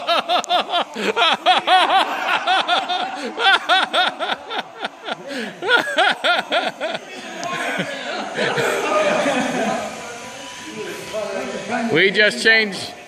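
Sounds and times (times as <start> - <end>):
electric motor and propeller whine: 4.2 - 13.0.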